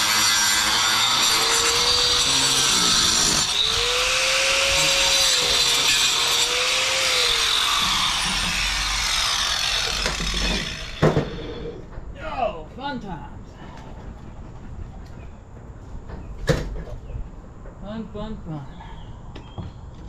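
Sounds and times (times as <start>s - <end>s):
power tool grinding: 0.0s - 11.8s.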